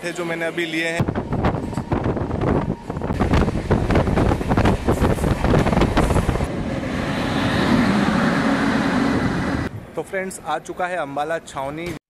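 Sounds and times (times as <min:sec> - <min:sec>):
electric locomotive passing: 0:00.0 - 0:10.0
steady train hum: 0:00.0 - 0:10.7
wind on microphone: 0:01.0 - 0:09.8.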